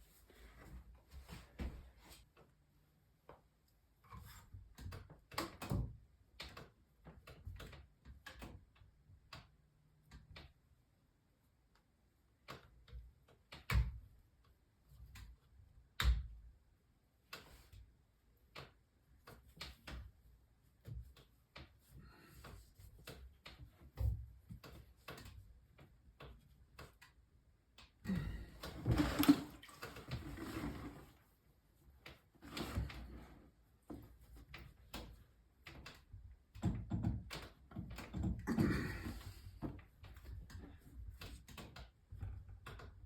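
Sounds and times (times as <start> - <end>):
irregular clicks and knocks: 1.1 - 10.8, 11.7 - 16.6, 17.2 - 31.0, 31.8 - 43.0.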